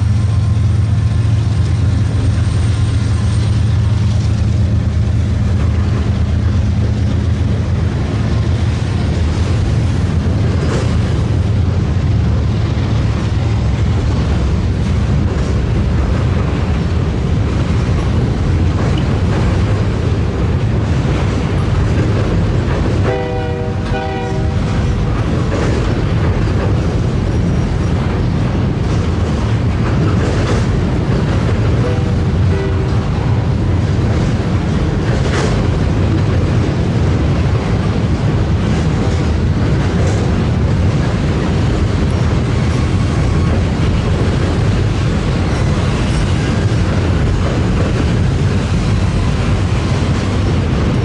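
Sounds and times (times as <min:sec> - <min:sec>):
train rumbling: 0:00.0 - 0:51.0
locomotive air horn blast: 0:23.1 - 0:24.8, 0:31.8 - 0:33.3.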